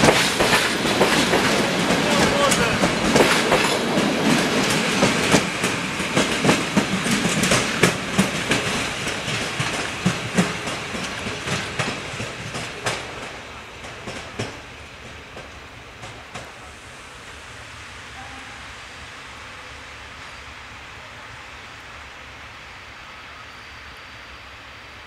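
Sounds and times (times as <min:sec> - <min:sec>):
train wheels clickety-clack: 0:00.0 - 0:17.6.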